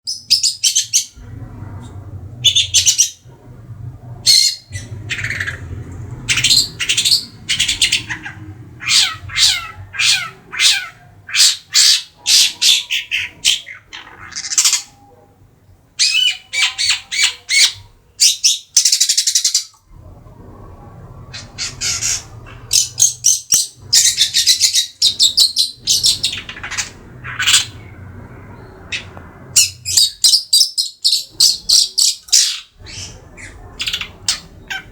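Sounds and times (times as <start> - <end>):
bird harsh calls and chatter: 4.1 - 15.2, 21.2 - 34.9.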